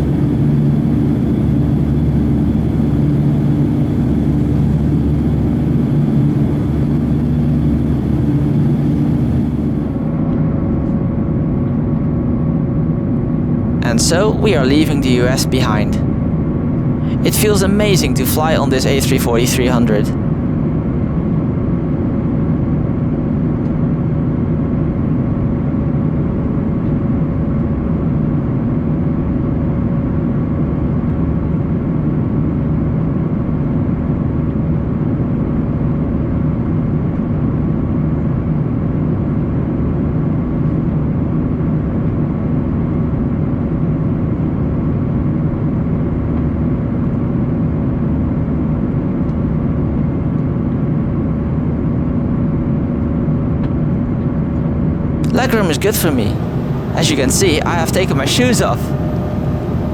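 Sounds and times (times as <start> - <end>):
airplane cabin drone: 0.0 - 10.1, 13.2 - 20.3, 55.2 - 59.9.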